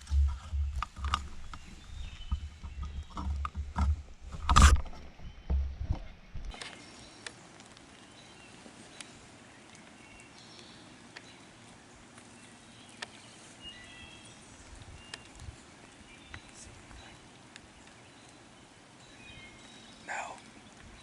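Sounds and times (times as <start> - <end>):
faint bird chirps: 8.0 - 21.0.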